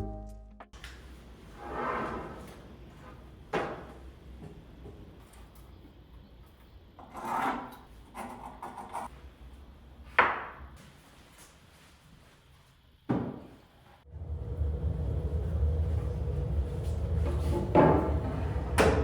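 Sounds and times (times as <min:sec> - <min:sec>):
low steady hum: 0:14.0 - 0:19.0.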